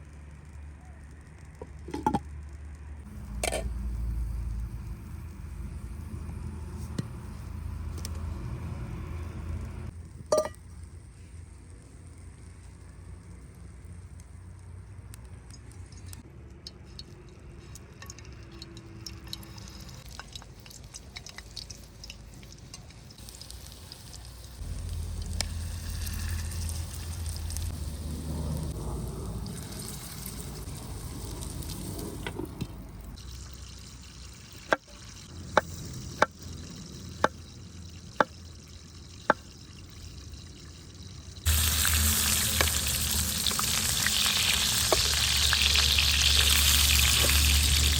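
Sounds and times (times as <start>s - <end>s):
handling and liquid sounds: 15.0s - 24.4s
food sizzling in hot pan: 23.0s - 32.0s, 33.1s - 47.9s.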